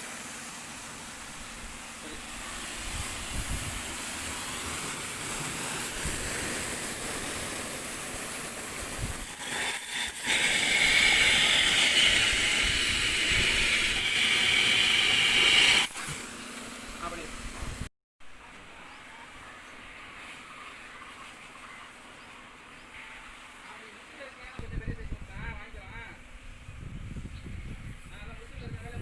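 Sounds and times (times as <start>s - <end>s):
pressure washer jet hissing: 0.0s - 17.8s.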